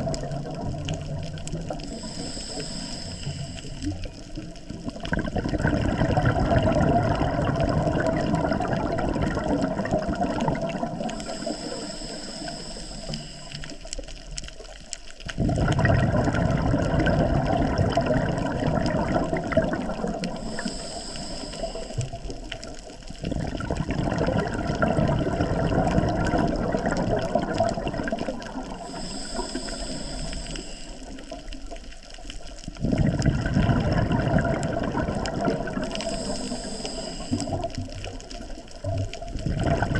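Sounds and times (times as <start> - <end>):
underwater bubbles gurgling: 0.0 - 39.9
higher steady hiss: 1.1 - 4.8, 10.9 - 15.1, 19.8 - 22.9, 28.1 - 32.0, 35.6 - 38.6.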